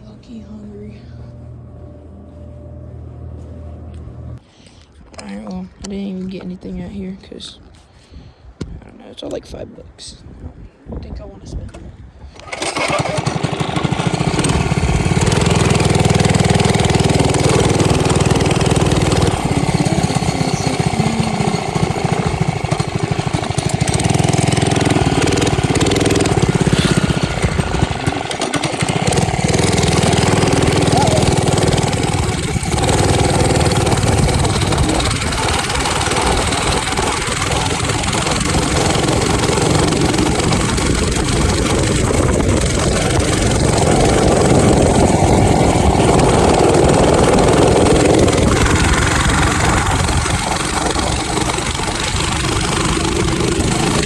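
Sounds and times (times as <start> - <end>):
minibike engine running: 12.4 - 54.0.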